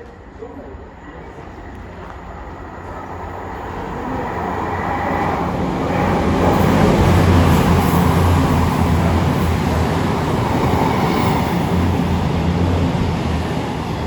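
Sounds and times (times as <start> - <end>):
train engine drone: 0.0 - 14.0
train wheels rumbling: 0.0 - 14.0.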